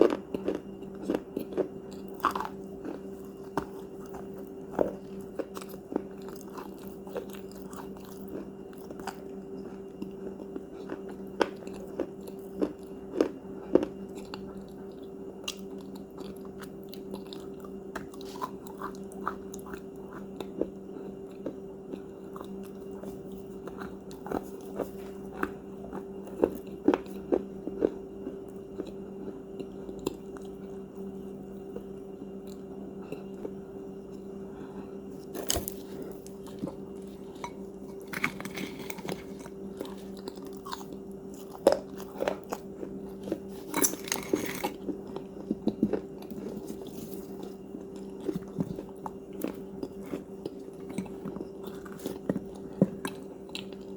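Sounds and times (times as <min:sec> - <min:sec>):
person chewing crunchy cookies: 0:00.0 - 0:53.9
low hum: 0:27.5 - 0:53.9.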